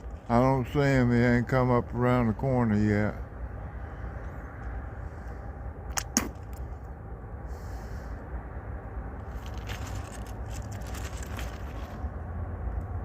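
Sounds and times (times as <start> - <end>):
diesel locomotive rumble: 0.0 - 13.0
sharp clicks: 5.9 - 6.7.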